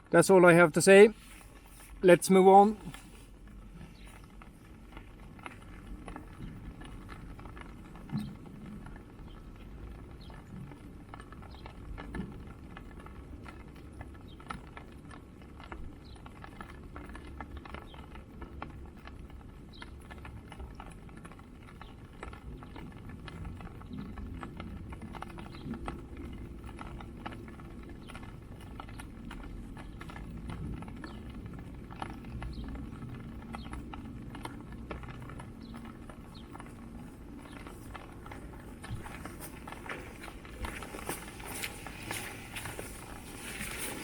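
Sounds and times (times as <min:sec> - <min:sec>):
bare feet on wet muddy grass: 0:01.0 - 0:10.4, 0:35.8 - 0:44.0.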